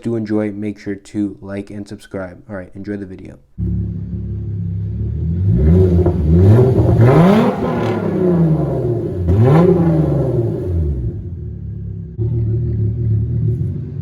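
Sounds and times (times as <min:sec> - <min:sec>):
loud car engine revving: 0:03.6 - 0:14.0.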